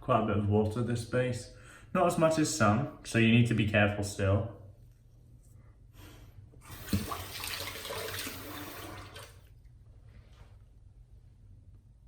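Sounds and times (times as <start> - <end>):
tap water running: 6.6 - 9.6.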